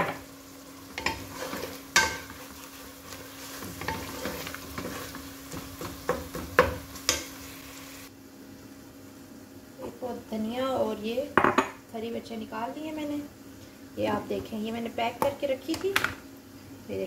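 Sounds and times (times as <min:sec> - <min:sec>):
masala sizzling in oil: 0:00.0 - 0:17.0
spoon stirring in pot: 0:00.9 - 0:07.4.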